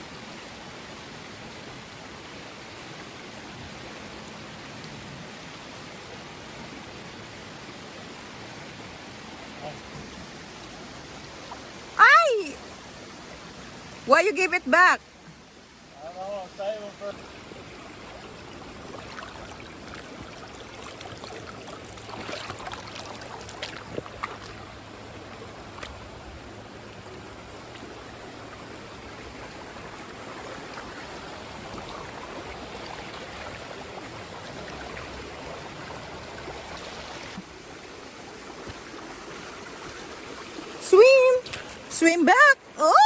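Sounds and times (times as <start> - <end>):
river water running: 0.0 - 43.0.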